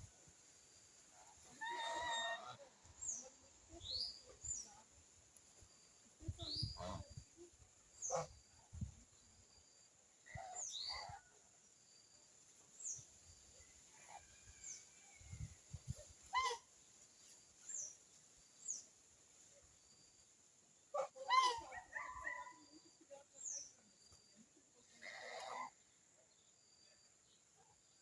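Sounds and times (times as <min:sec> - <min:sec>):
small birds chirping: 0:01.3 - 0:11.3.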